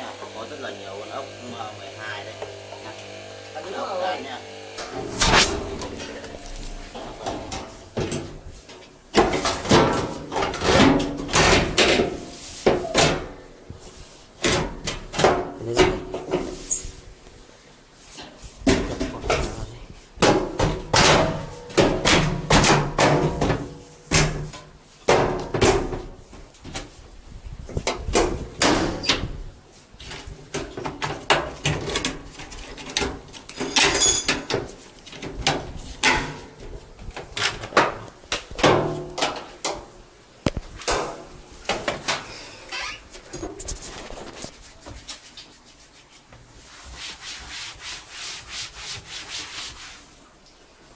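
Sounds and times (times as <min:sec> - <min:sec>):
washing machine parts clattering: 0:05.7 - 0:12.2, 0:30.2 - 0:36.5.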